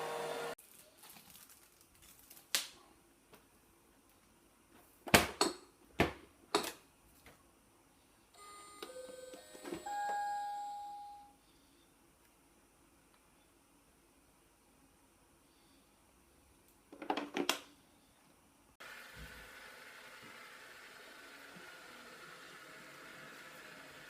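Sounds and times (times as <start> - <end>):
electronic chime melody: 8.4 - 11.3.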